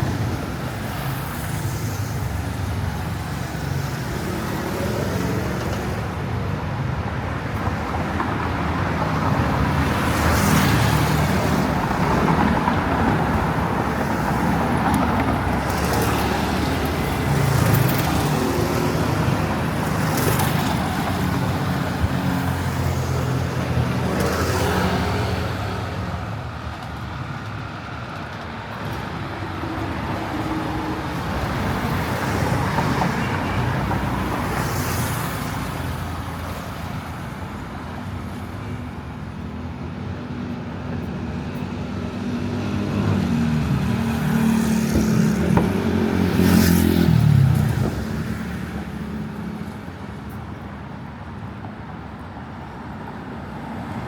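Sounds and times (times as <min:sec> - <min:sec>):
car engines passing: 0:00.0 - 0:54.0
vehicle passing close by: 0:42.6 - 0:49.6.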